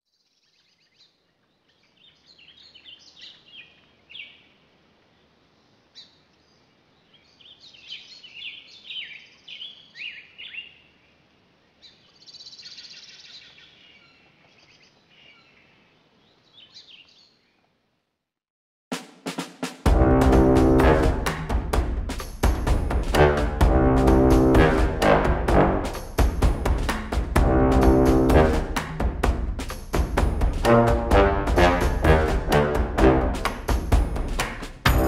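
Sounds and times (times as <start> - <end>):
small birds chirping: 0.1 - 17.8
faint background hiss: 0.2 - 18.2.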